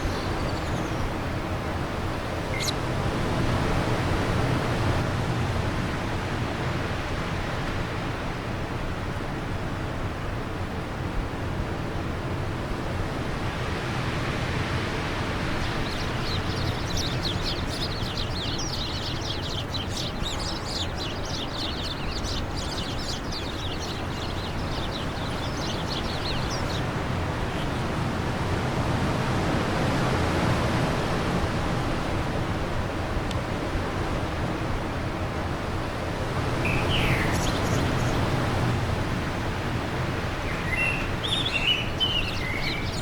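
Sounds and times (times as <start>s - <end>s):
songbird twittering: 0.0s - 2.8s, 15.0s - 28.1s, 36.5s - 38.7s, 40.4s - 43.0s
wind blowing: 0.0s - 5.0s, 13.0s - 43.0s.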